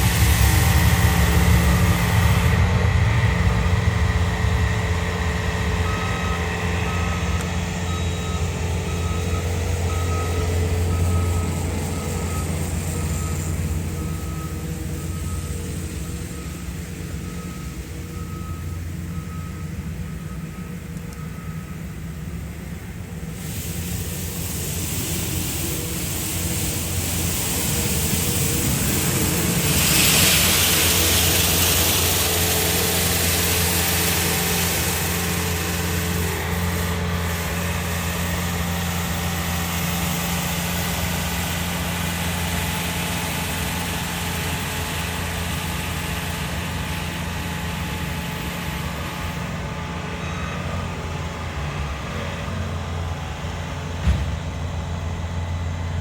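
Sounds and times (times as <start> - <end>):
vehicle engine humming: 0.0 - 56.0
passing vehicles rushing: 27.4 - 36.8.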